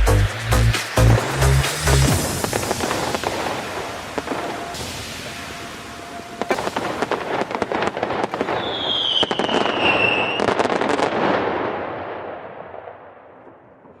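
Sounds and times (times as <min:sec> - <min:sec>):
fireworks crackling and popping: 0:00.0 - 0:14.0
high firework whistle: 0:00.9 - 0:11.1.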